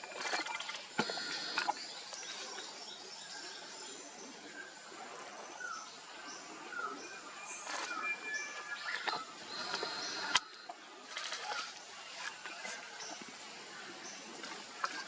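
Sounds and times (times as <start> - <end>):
birds chirping and whistling: 6.8 - 10.6.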